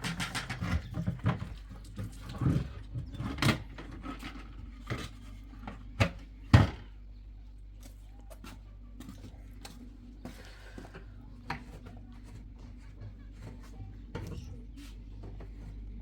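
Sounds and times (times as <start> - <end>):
objects knocking and clattering: 0.0 - 7.0.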